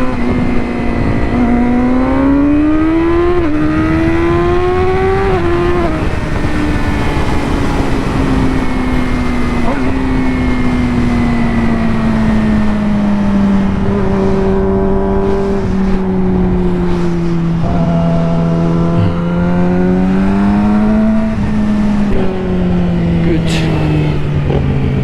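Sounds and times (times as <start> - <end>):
motorcycle engine: 0.0 - 25.0
wind rush: 0.0 - 25.0.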